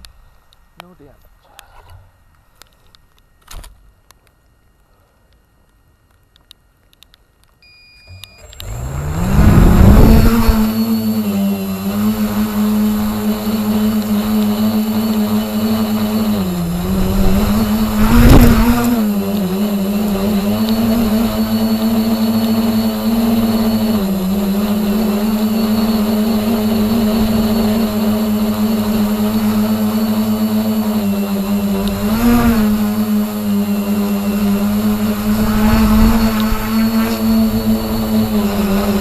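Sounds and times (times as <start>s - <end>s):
rc helicopter motor and rotor hum: 8.0s - 39.0s.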